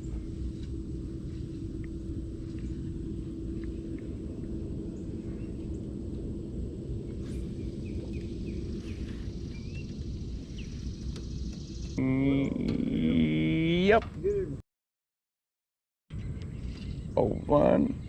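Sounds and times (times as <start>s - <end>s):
faint hum: 0.0s - 14.6s
low rumble: 0.0s - 14.6s
bird chirps: 7.2s - 12.6s.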